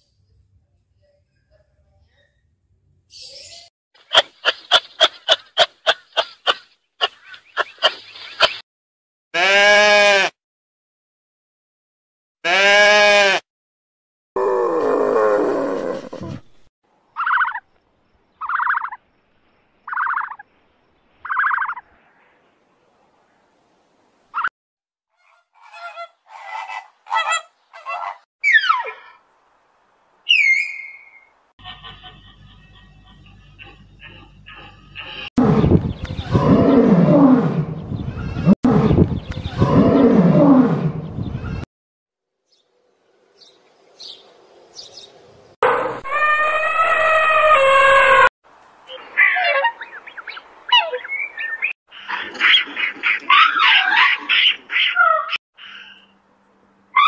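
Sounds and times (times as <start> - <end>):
drawn-out falling animal call: 9.4 - 10.3, 12.4 - 13.4, 14.4 - 17.6, 21.2 - 21.8, 45.6 - 48.3, 48.9 - 55.4
lion roaring: 14.4 - 16.6, 35.4 - 37.7, 39.6 - 41.0
short high animal calls: 45.7 - 48.3.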